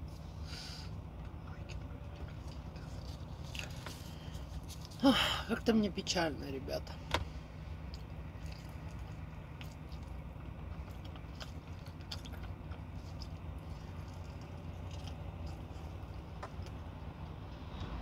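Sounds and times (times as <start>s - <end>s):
steady low hum: 0.0s - 18.0s
crunchy biting and chewing: 1.7s - 5.0s, 7.8s - 18.0s.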